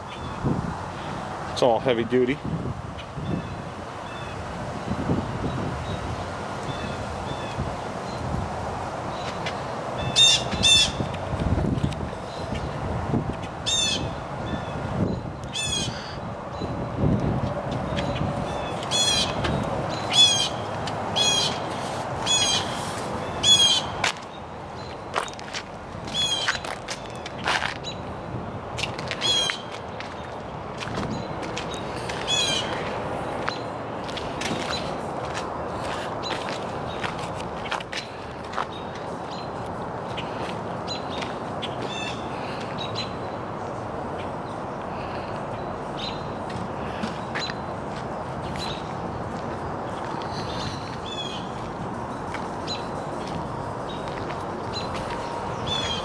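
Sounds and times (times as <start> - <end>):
bird cawing: 15.5 - 16.2, 18.5 - 22.8
steady rushing background noise: 16.2 - 56.0
small birds chirping: 48.4 - 56.0.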